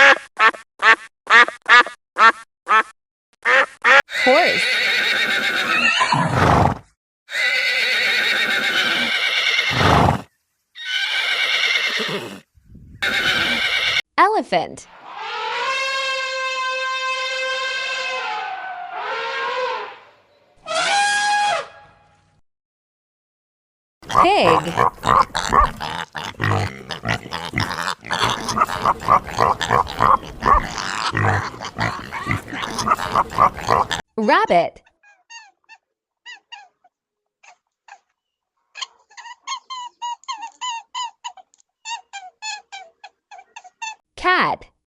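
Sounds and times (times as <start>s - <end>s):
horse whinnying: 4.1s - 14.0s
pig grunting: 24.0s - 34.0s.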